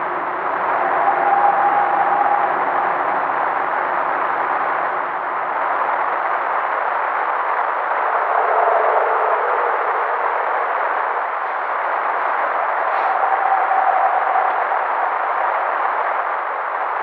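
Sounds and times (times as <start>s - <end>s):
faint howl-like tone: 0.0s - 17.0s
field recording hiss: 0.0s - 17.0s.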